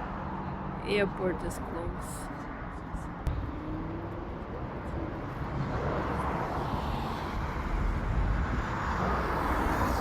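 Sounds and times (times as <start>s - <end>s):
vehicle engine and road noise: 0.0s - 10.0s.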